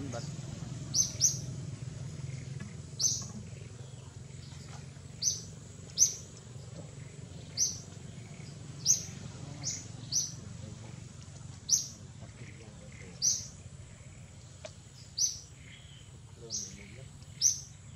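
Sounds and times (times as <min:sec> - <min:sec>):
bird chirping: 0:00.0 - 0:17.9
low background rumble: 0:00.0 - 0:17.9.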